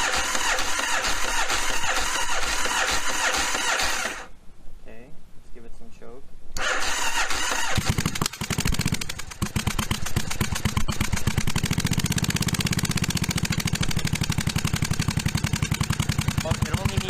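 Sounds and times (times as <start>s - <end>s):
motorcycle engine cranking: 0.0s - 4.3s, 6.6s - 17.0s
motorcycle engine idling: 7.9s - 17.0s.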